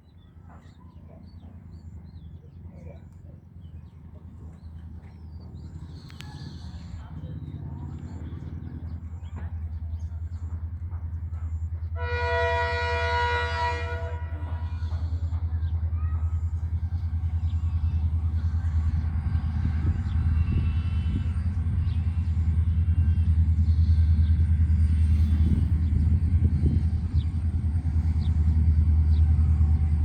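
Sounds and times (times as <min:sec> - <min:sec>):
train rumbling: 0:00.0 - 0:30.0
train horn blast: 0:11.8 - 0:15.3.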